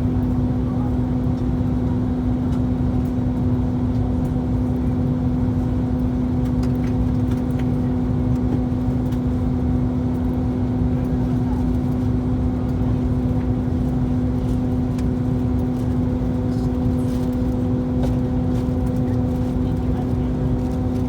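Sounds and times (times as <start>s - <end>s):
aircraft engine and airflow rumble: 0.0s - 21.0s
constant low hum: 0.0s - 21.0s.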